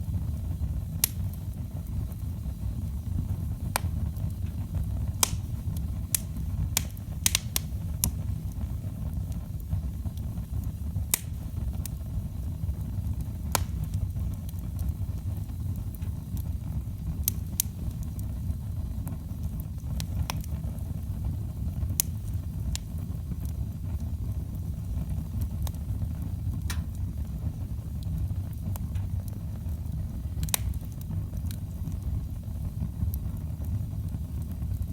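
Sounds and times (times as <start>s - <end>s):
burning logs popping and crackling: 0.0s - 34.9s
fire rumbling: 0.0s - 34.9s.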